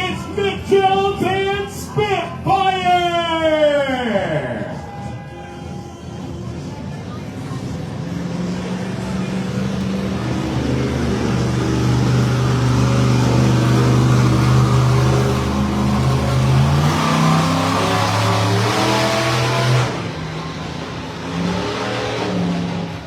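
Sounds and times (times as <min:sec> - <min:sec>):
monster truck engine revving: 0:06.2 - 0:23.0.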